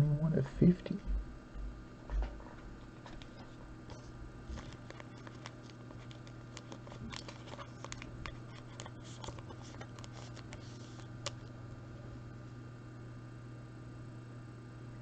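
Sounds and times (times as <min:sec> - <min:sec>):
steady low hum: 0:00.0 - 0:15.0
trading cards clicking and rustling: 0:03.0 - 0:11.5.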